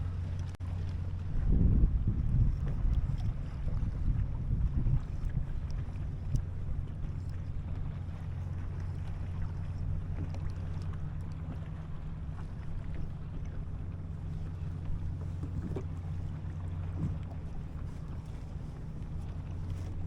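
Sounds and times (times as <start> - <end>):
small water splashes: 0.0 - 20.0
wind rumble on microphone: 0.0 - 20.0
faint ticks: 5.0 - 11.7.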